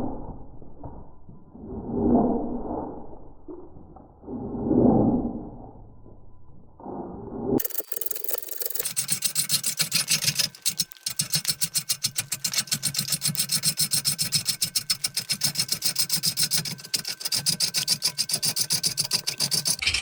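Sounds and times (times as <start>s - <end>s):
lathe tool chattering on wood: 7.6s - 20.0s.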